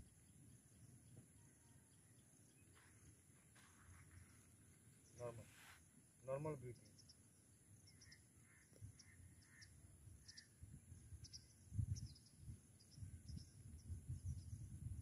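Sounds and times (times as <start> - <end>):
faint distant bird calls: 0.0 - 14.7
wind rumble on microphone: 10.0 - 15.0.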